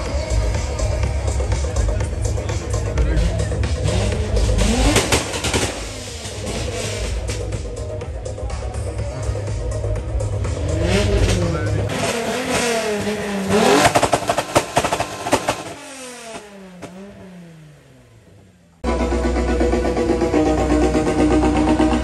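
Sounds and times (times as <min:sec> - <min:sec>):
car engine revving: 0:00.0 - 0:22.0
exhaust pops and crackles: 0:02.0 - 0:07.8, 0:11.0 - 0:17.4.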